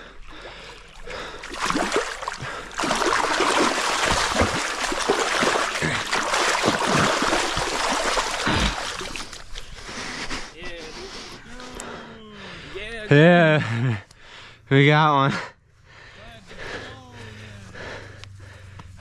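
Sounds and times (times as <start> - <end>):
fish thrashing in water: 0.7 - 9.7.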